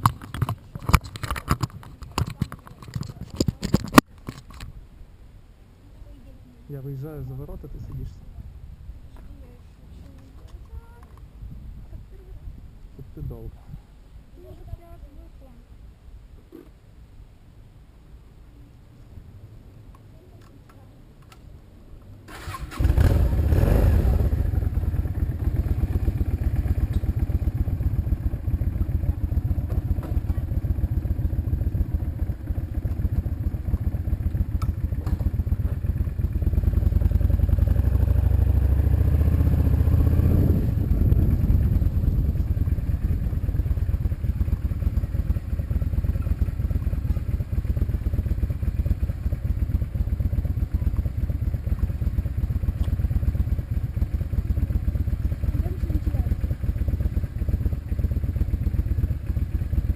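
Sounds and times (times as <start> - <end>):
engine low rumble: 0.0 - 59.9
vehicle engine starting: 22.2 - 59.9.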